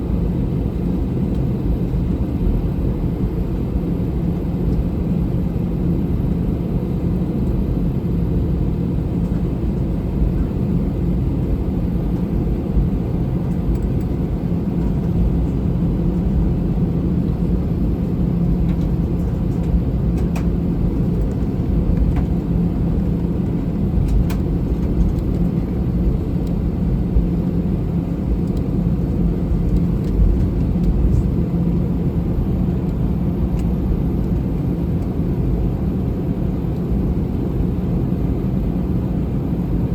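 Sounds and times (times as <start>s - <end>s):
aircraft cabin drone: 0.0s - 39.9s.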